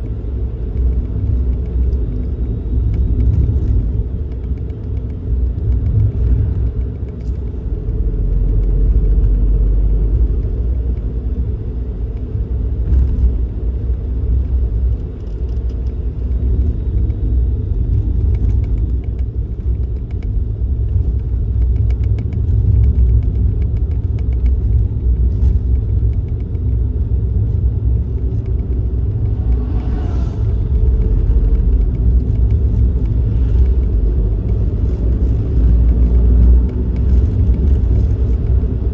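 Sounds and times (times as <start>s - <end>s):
car engine rumble: 0.0s - 38.9s
road noise: 0.0s - 38.9s.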